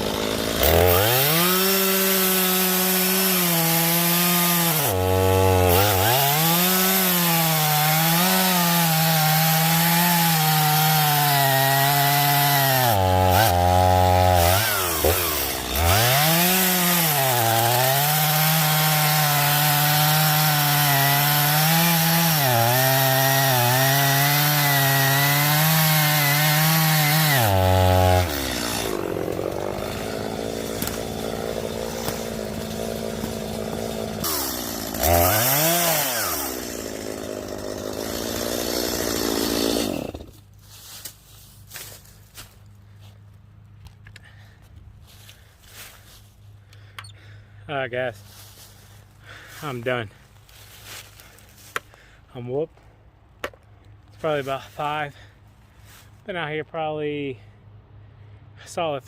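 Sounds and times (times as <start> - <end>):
chainsaw cutting wood: 0.0 - 42.6, 48.3 - 52.2.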